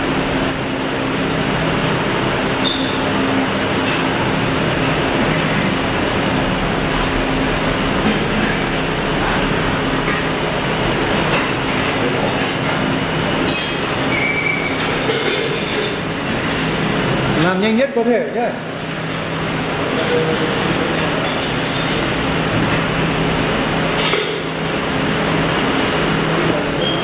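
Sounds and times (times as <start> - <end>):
welding machine hum: 0.0 - 17.5.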